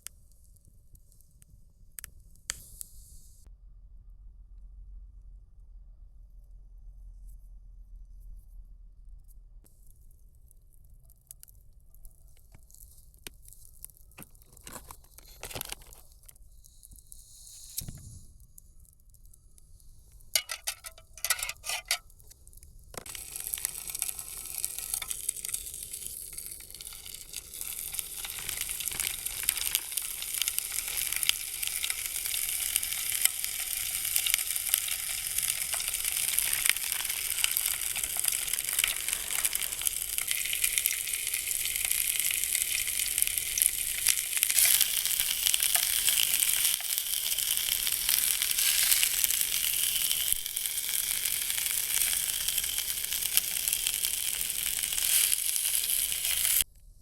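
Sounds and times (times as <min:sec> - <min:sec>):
food sizzling in a pan: 0:15.1 - 0:18.2, 0:19.9 - 0:56.7.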